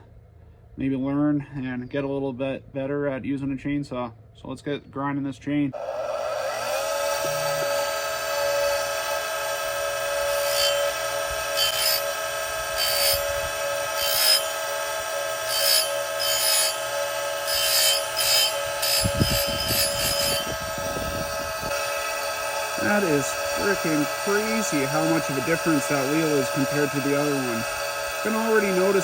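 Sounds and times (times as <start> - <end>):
grinder motor whining: 5.8 - 29.0
grinding wheel rasping on chain: 7.2 - 29.0.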